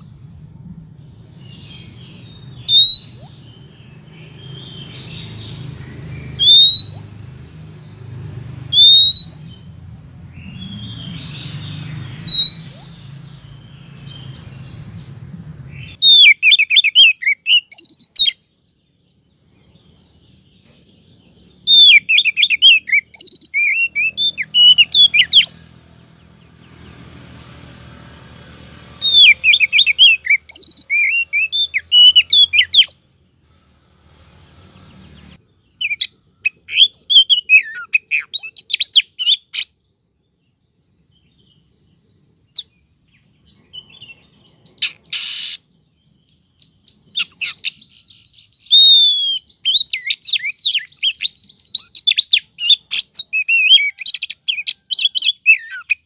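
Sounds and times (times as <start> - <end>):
bird rapid chattering call: 21.3 - 25.7, 28.9 - 33.0, 42.5 - 56.0.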